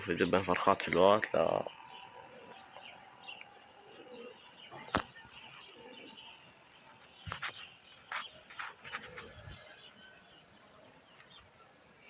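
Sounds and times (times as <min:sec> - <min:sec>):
pigeons cooing: 0:01.4 - 0:10.9.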